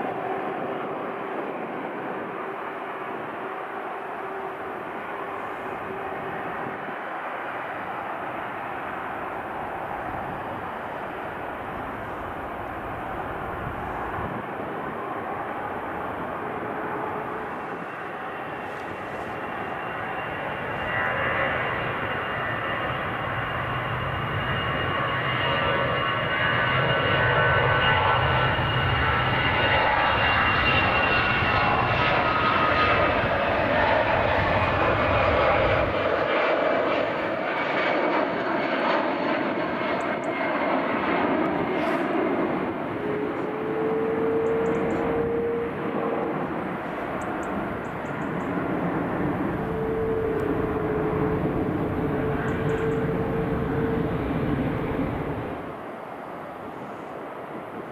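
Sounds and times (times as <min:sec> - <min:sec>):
jet engines running: 0:00.0 - 0:57.9
thin high whine: 0:41.6 - 0:55.6.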